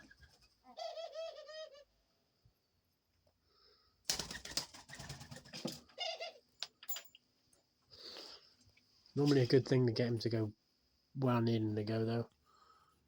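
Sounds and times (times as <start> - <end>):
dove calling: 0.0 - 1.9, 4.1 - 6.5
wings flapping: 4.0 - 5.9.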